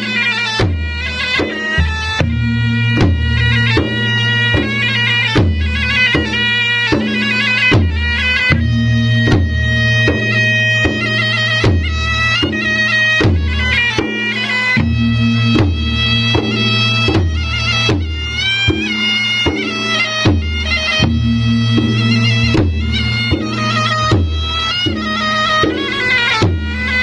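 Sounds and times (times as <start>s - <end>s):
drums beating a steady rhythm: 0.0s - 27.0s
reedy wind instrument melody: 0.0s - 27.0s
low drone: 2.1s - 6.0s, 8.6s - 12.4s, 14.8s - 17.9s, 20.9s - 26.4s.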